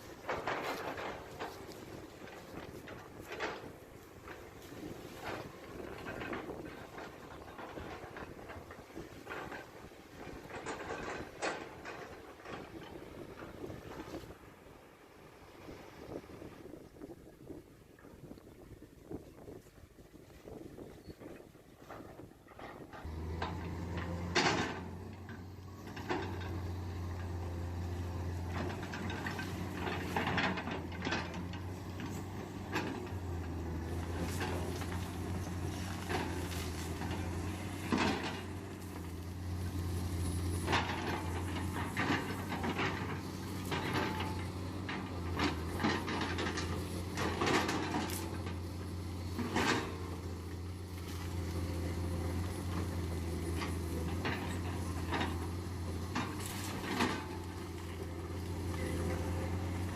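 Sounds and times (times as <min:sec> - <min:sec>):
diesel engine drone: 0:22.5 - 0:59.9.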